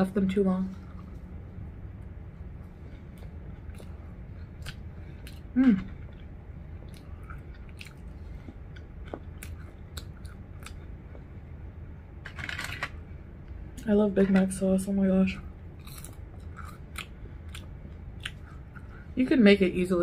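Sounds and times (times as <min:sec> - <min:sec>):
person chewing crunchy fries: 0:02.8 - 0:11.4, 0:15.6 - 0:19.1.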